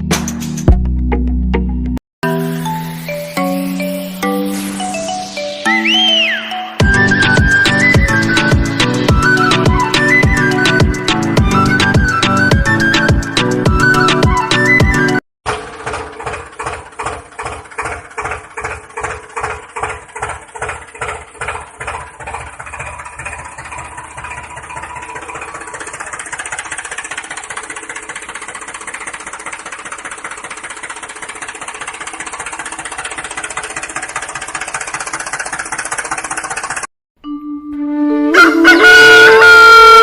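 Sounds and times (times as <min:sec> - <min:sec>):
small tractor motor running: 0:15.5 - 0:36.9.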